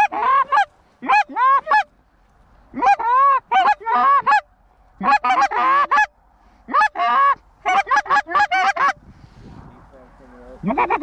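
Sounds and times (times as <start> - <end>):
goose honks and clucks: 0.0 - 2.0, 2.7 - 9.0, 10.6 - 11.0.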